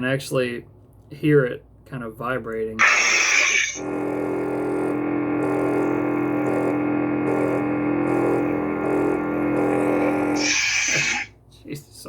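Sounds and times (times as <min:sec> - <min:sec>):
lightsaber hum from speaker: 0:02.8 - 0:11.3.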